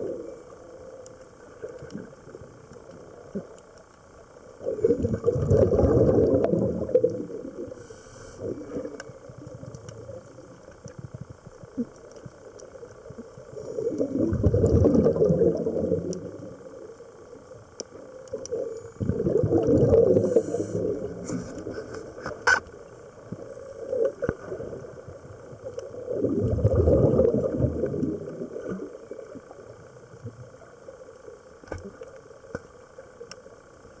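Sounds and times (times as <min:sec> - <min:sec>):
underwater water noise: 0:00.0 - 0:34.0
exhaled bubbles rushing: 0:04.6 - 0:07.7, 0:13.5 - 0:16.6, 0:18.5 - 0:21.2, 0:25.9 - 0:28.9.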